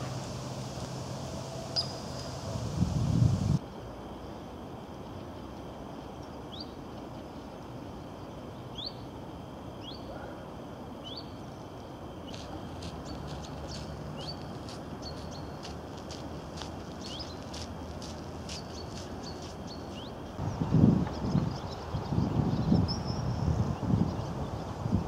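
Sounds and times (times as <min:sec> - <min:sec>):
small bird chirping: 0:17.0 - 0:17.4.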